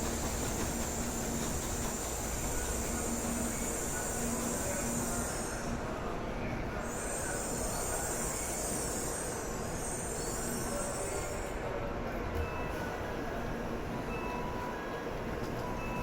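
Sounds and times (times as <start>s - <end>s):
train humming and rushing: 0.0s - 16.0s.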